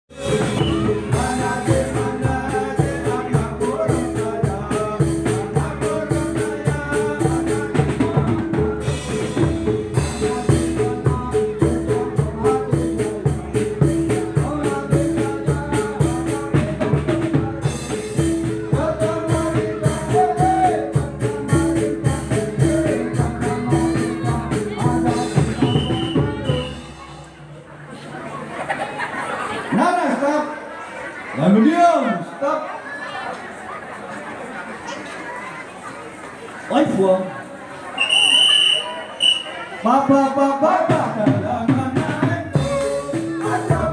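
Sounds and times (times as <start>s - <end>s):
music with fast drum beat: 0.1s - 27.2s, 40.8s - 43.9s.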